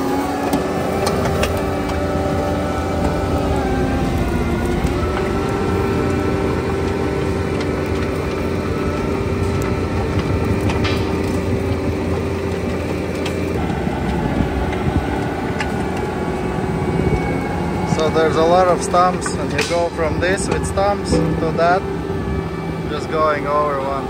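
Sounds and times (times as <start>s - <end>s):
diesel engine under load: 0.0s - 24.0s
mulcher grinding stumps: 0.0s - 24.0s
debris ticks: 2.9s - 16.2s, 17.9s - 21.8s.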